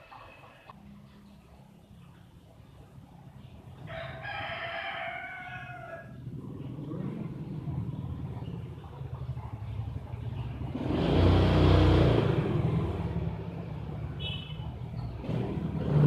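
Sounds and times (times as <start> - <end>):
vehicle engine passing by: 6.0 - 16.0.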